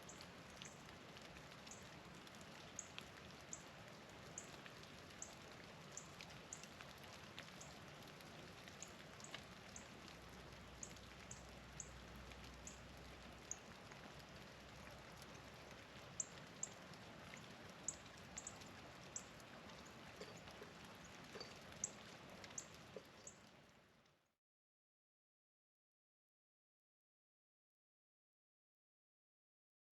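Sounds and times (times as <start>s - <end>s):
patter of falling rain: 0.0s - 24.4s
small birds chipping: 10.6s - 12.0s, 12.6s - 14.4s, 16.2s - 23.4s.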